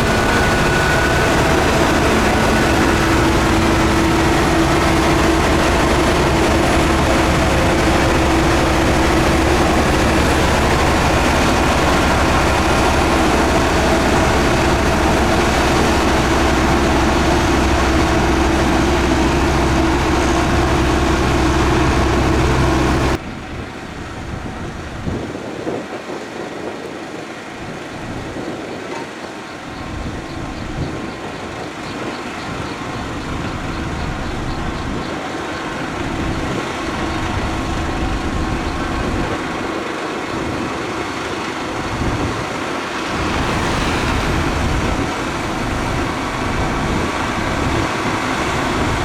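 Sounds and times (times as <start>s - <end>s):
rough machine sound: 0.0s - 24.6s, 43.1s - 49.0s
heavy machine engine droning: 0.0s - 25.5s, 27.6s - 49.0s.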